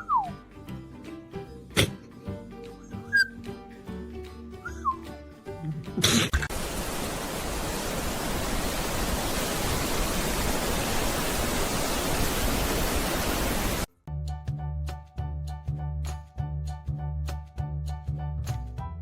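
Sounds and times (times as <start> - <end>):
steady hiss: 6.5 - 13.9.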